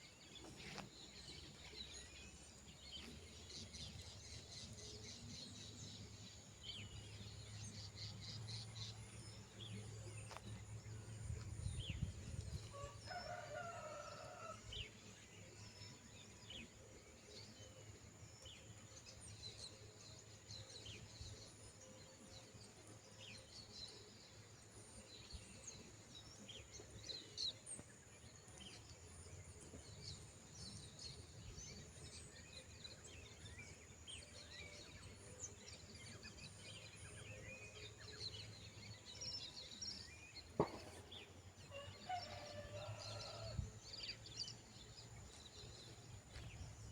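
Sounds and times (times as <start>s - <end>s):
rooster crowing: 12.7s - 14.6s, 41.7s - 43.6s.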